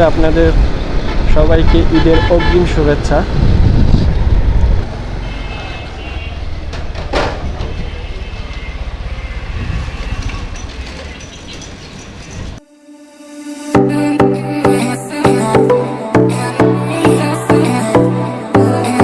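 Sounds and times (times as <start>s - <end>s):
traffic: 0.0s - 12.6s
wind rumble: 0.0s - 12.6s
motorcycle engine: 2.4s - 12.6s.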